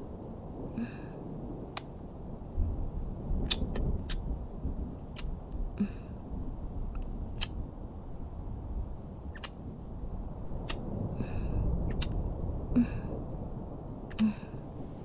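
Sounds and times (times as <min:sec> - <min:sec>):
low rumbling background: 0:00.0 - 0:15.0
breaths: 0:00.7 - 0:01.3, 0:11.2 - 0:11.8, 0:14.1 - 0:15.0
lip smacking kisses: 0:03.5 - 0:04.2, 0:11.9 - 0:12.2.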